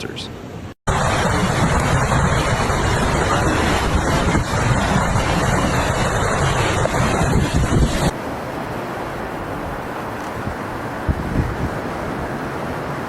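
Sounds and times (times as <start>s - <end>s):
wind and rain rushing: 0.4s - 13.0s
wind buffeting rumble: 0.9s - 8.2s, 9.0s - 12.4s.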